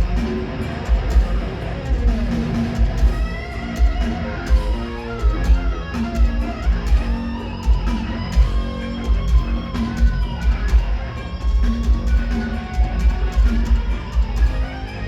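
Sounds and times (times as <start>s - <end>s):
heavy drum hits: 0.0s - 14.6s
bass guitar: 0.0s - 15.0s
electric guitar: 0.0s - 15.0s.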